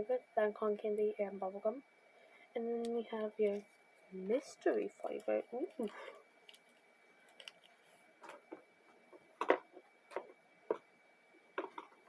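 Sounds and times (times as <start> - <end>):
snack packages handled: 5.7 - 10.8.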